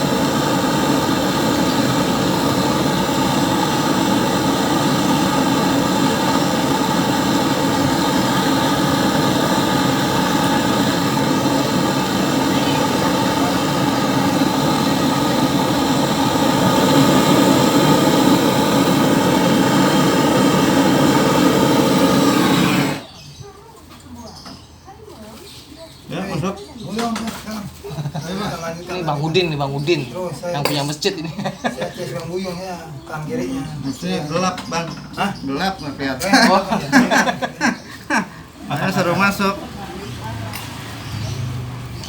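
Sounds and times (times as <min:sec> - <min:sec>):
gas torch flame rushing: 0:00.0 - 0:23.2.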